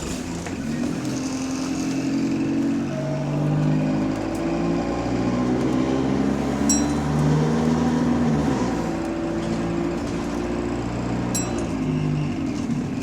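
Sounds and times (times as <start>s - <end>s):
diesel bus engine: 0.0s - 13.0s
short high ding: 6.6s - 7.6s, 11.3s - 12.3s.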